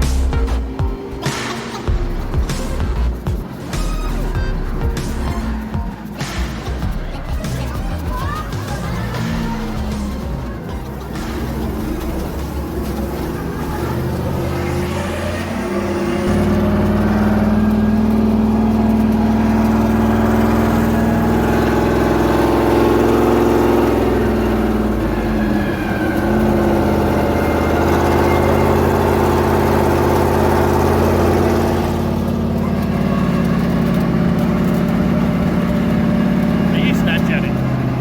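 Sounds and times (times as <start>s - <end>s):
truck engine running: 0.0s - 38.0s.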